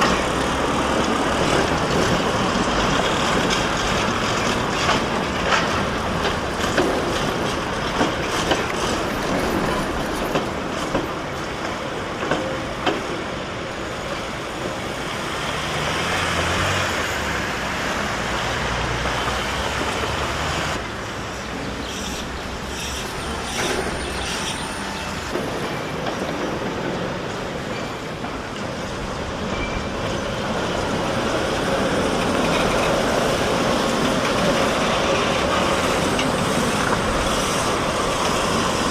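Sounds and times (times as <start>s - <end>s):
tram wheel clicks over rail joints: 0.0s - 13.3s, 21.8s - 38.9s
tram rolling noise: 0.0s - 38.9s.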